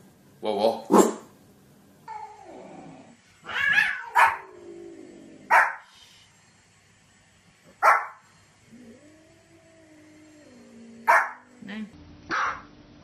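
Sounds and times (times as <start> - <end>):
dog barking: 3.8 - 4.5, 5.5 - 5.8, 7.8 - 8.2, 11.0 - 11.4, 12.3 - 12.7.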